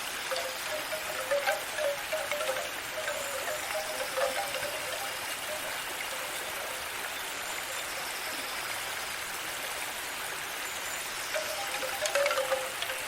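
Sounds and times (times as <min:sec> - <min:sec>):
stream trickling: 0:00.0 - 0:13.0
wind chime notes: 0:00.2 - 0:07.2, 0:11.3 - 0:13.0.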